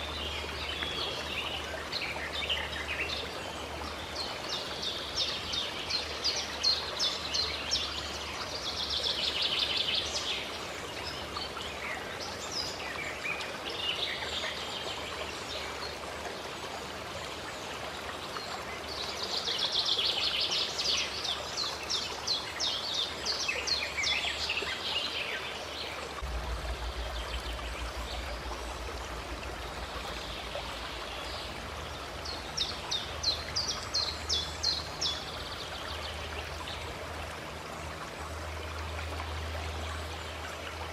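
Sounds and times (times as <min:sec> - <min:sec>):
stream running water: 0:00.0 - 0:40.9
songbirds singing: 0:18.1 - 0:40.8.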